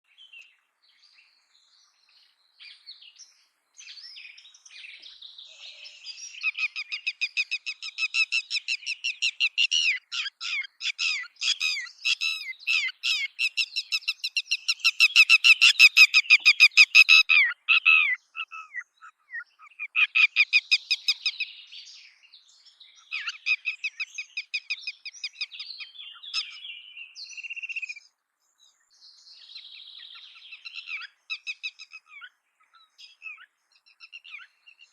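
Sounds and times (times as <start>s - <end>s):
lapwing alarm call: 5.5s - 21.6s, 23.0s - 28.1s, 30.0s - 34.9s.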